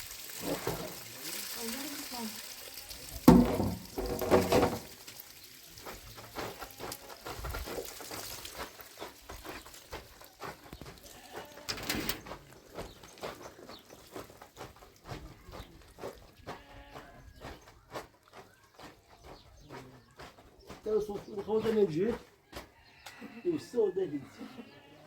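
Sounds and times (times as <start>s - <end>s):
knocks and clatter: 3.2s - 5.0s
farm animal bleating: 11.0s - 12.0s, 16.4s - 17.3s, 23.0s - 25.0s.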